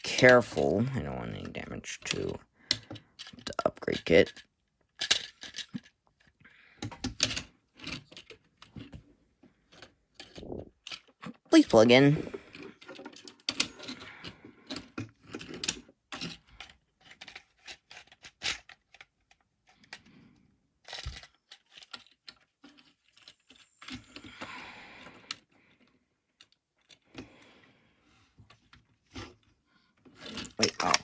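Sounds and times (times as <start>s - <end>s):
plastic parts clicking and rattling: 0.0s - 27.4s, 28.4s - 31.0s
plastic rubbing: 30.1s - 31.0s.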